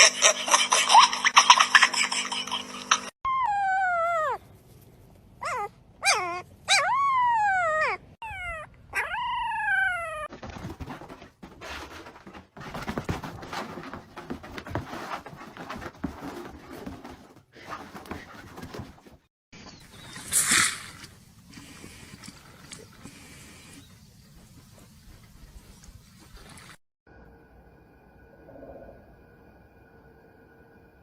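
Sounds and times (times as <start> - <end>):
scuffling rustling noise: 10.3 - 19.2.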